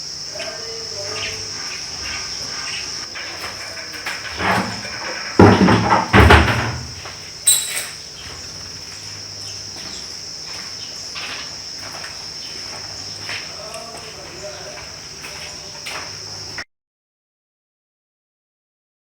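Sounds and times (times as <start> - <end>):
crickets singing: 0.0 - 16.6
loud knocks: 3.2 - 7.2.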